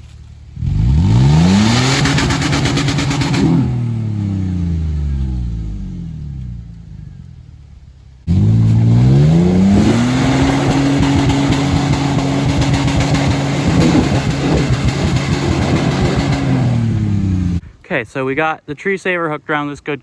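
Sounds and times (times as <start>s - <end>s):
engine note: 0.0s - 17.6s
truck engine revving: 0.0s - 17.6s
gritty rattle: 6.3s - 17.6s.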